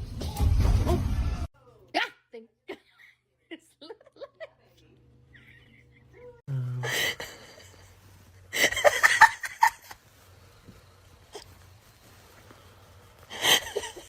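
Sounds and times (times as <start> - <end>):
person laughing: 5.4 - 10.0, 13.3 - 14.0.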